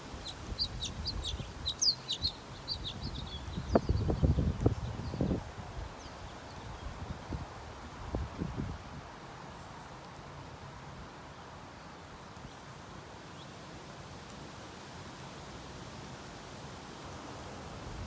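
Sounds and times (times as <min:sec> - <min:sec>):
outdoor background hiss: 0:00.0 - 0:18.0
faint high ticks: 0:06.0 - 0:07.8.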